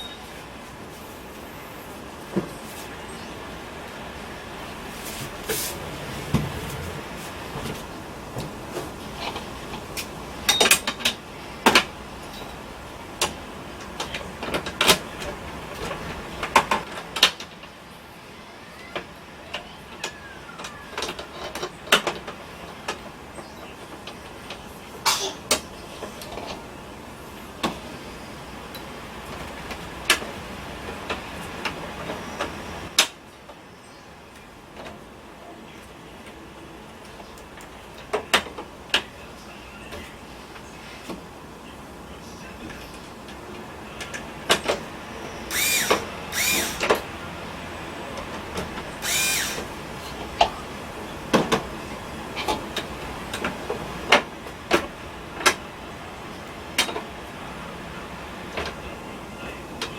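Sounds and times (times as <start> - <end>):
sharp clicks and knocks of hard parts: 45.5 - 47.1, 48.2 - 50.5.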